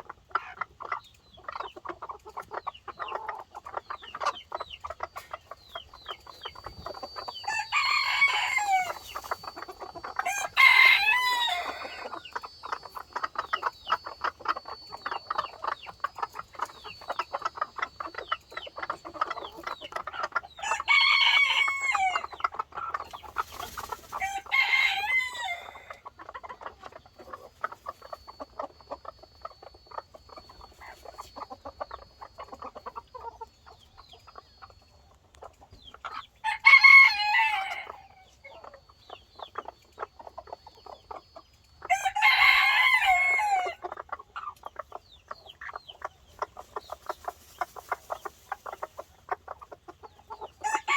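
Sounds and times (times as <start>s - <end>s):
chickens clucking: 0.0s - 50.9s
rooster crowing: 7.5s - 9.0s, 10.2s - 12.2s, 20.6s - 22.3s, 24.2s - 26.0s, 36.4s - 38.2s, 41.9s - 43.8s, 50.6s - 50.9s.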